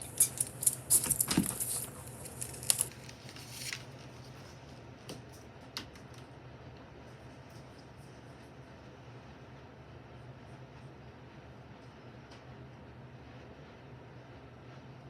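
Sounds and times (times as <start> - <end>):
sharp clicks and rustling: 0.0 - 3.8
steady low hum: 0.0 - 15.0.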